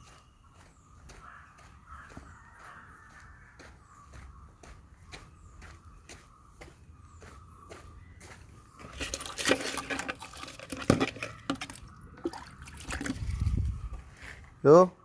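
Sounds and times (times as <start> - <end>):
water splashing into radiator: 9.0 - 13.4.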